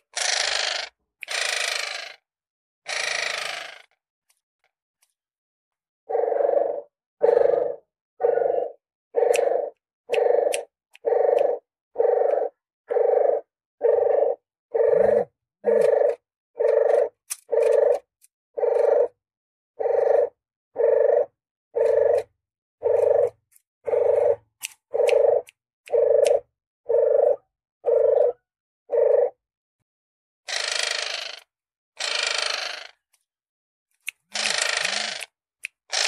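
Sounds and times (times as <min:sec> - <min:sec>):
dove call low notes: 0:06.1 - 0:18.0.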